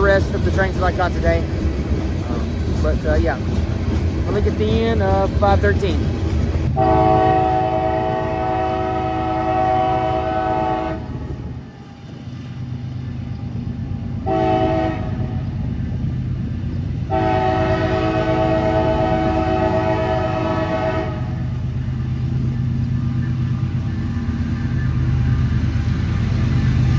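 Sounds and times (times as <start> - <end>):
low rumble of train: 0.0 - 26.9
locomotive air horn: 6.8 - 11.1, 14.2 - 15.3, 17.1 - 21.4.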